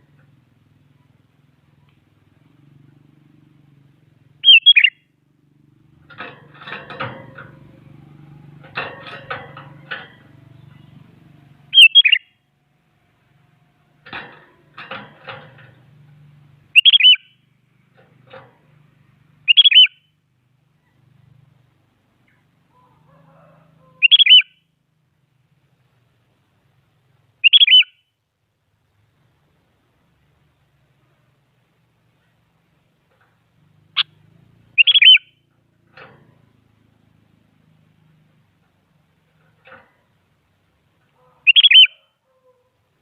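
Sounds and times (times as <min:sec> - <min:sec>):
bird whistled calls: 0:04.4 - 0:05.0, 0:11.7 - 0:12.3, 0:16.7 - 0:17.4, 0:19.5 - 0:20.1, 0:24.0 - 0:24.6, 0:27.4 - 0:28.0, 0:34.8 - 0:35.3, 0:41.5 - 0:42.1.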